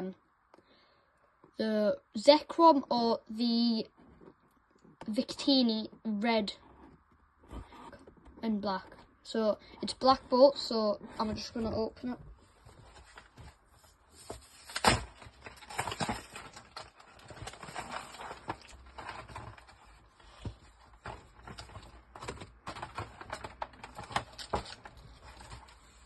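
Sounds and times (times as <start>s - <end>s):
packaging rustling and crinkling: 12.3s - 26.0s.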